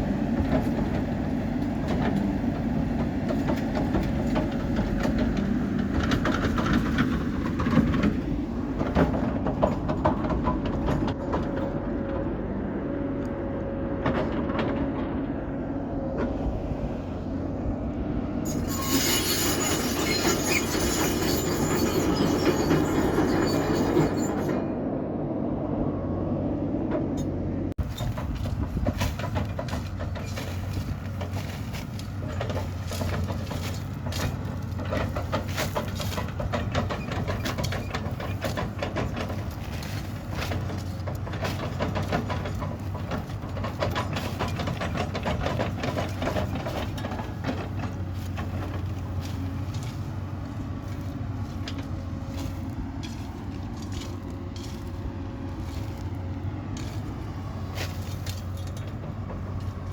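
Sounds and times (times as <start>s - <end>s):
diesel engine humming: 0.0s - 59.9s
metal clatter: 3.0s - 11.7s, 18.4s - 24.8s, 27.0s - 59.9s
rapid metal clanking: 27.8s - 55.1s.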